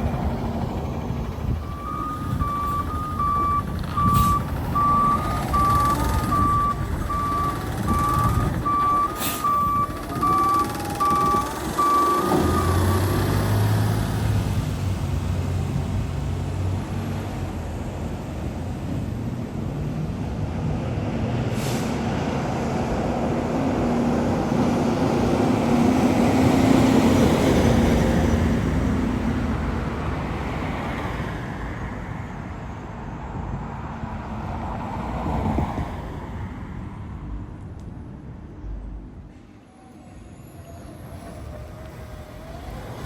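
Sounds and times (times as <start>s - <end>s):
heavy truck driving past: 0.0s - 32.1s.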